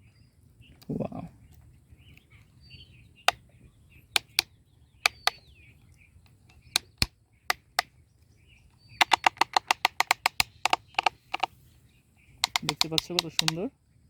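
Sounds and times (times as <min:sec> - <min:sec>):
birds chirping faintly: 0:00.0 - 0:14.0
toy plastic clicks: 0:04.2 - 0:04.5, 0:05.1 - 0:05.4, 0:06.3 - 0:07.9, 0:09.0 - 0:11.5, 0:12.4 - 0:13.7.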